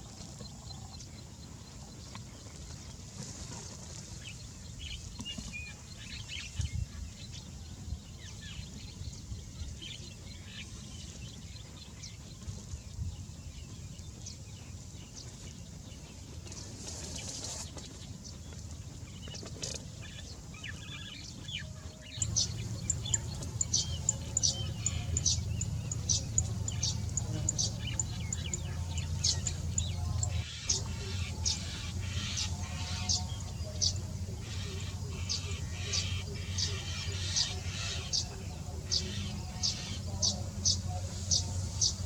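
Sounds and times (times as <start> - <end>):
birds chirping: 20.2 - 42.0
low background rumble: 22.1 - 42.0.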